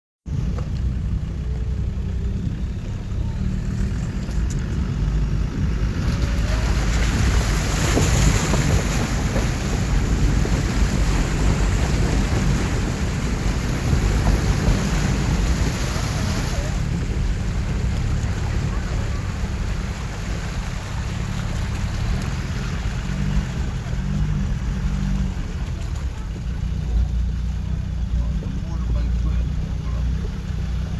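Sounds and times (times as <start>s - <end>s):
water rushing and splashing: 0.4s - 30.9s
wind buffeting microphone: 3.9s - 20.8s.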